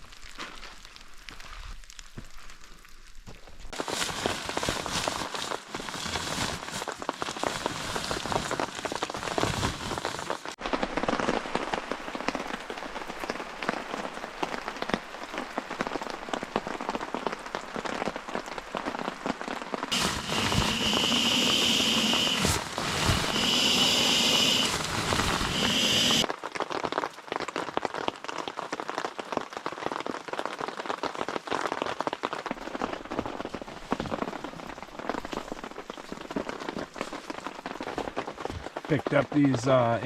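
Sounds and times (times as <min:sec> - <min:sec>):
rain falling: 0:03.7 - 0:40.0
steady high hiss: 0:19.9 - 0:26.3.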